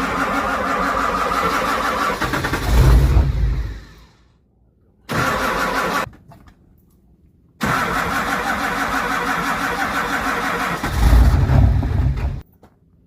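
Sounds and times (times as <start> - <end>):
diesel engine starter cranking: 0.0 - 4.0, 5.1 - 6.1, 7.6 - 12.4.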